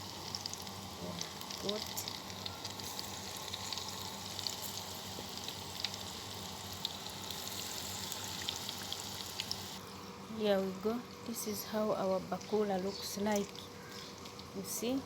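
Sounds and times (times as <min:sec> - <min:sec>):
batter sizzling in hot oil: 0:00.0 - 0:09.8.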